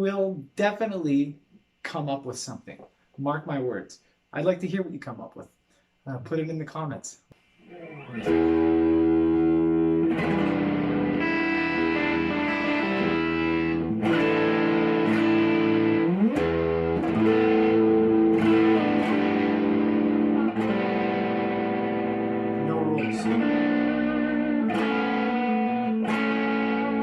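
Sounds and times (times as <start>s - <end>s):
guitar rising slide: 7.6s - 27.0s
guitar ringing chords: 7.7s - 27.0s.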